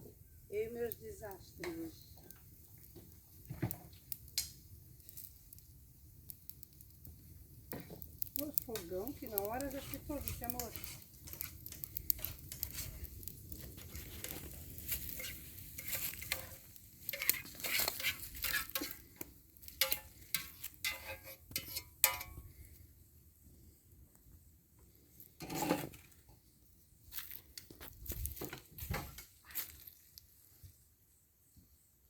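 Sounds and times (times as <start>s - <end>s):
metal utensil scraping pan: 8.8s - 22.5s, 25.4s - 26.0s.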